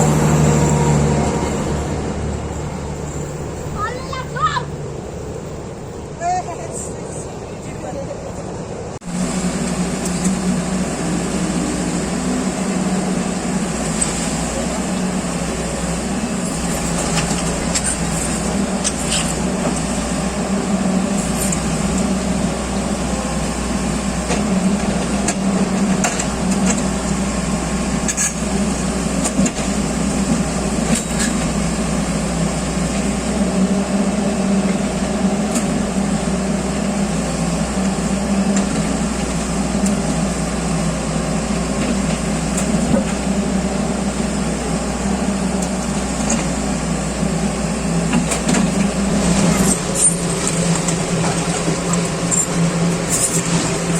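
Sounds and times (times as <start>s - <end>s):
machine engine humming: 0.0s - 53.9s.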